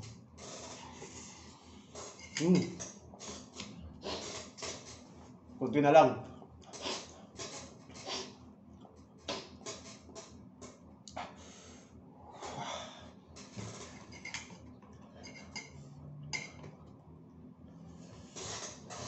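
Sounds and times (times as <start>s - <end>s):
breathing: 11.2s - 13.2s.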